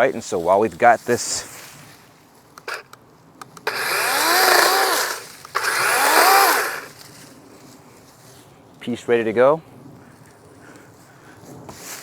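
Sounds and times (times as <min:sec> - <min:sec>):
cordless chainsaw motor whining: 0:02.6 - 0:02.9, 0:03.5 - 0:07.0.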